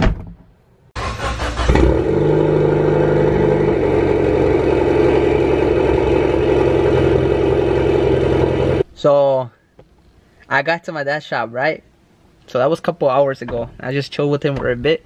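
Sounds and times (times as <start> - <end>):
starter motor cranking: 1.0 - 2.1
car engine idling: 1.0 - 8.8.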